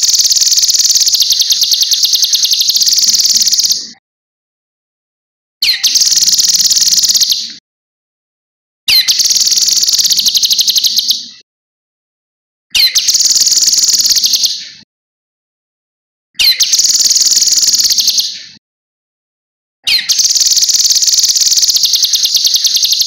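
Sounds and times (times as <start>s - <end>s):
songbird shrill rattling trill: 0.0s - 3.8s, 5.6s - 7.5s, 8.9s - 11.2s, 12.8s - 14.6s, 16.4s - 18.3s, 19.9s - 23.0s.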